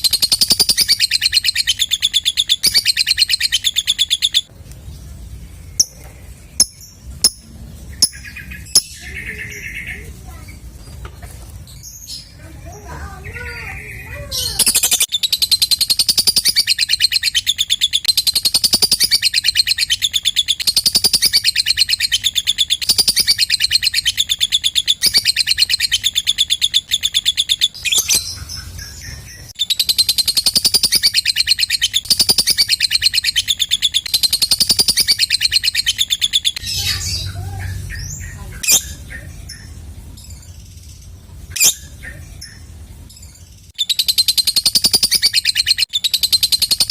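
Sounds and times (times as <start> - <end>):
bird chattering trill: 0.0 - 4.5, 5.7 - 10.8, 12.1 - 46.9
bird chirps: 0.0 - 46.9.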